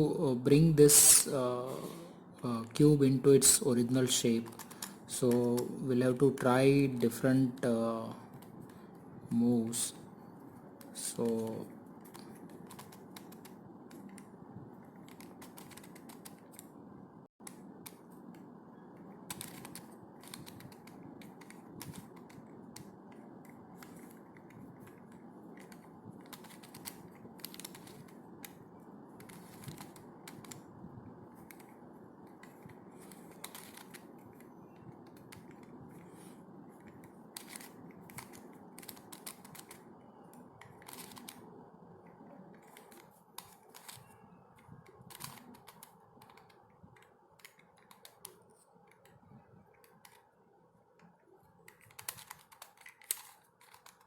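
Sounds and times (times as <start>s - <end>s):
puzzle cube clicking: 4.1s - 6.5s, 10.8s - 16.7s, 17.4s - 30.7s, 31.3s - 54.0s.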